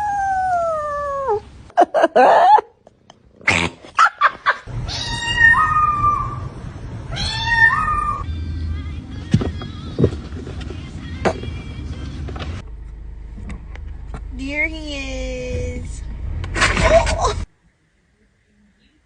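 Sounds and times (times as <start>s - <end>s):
cats meowing: 4.8s - 6.5s, 7.1s - 8.2s.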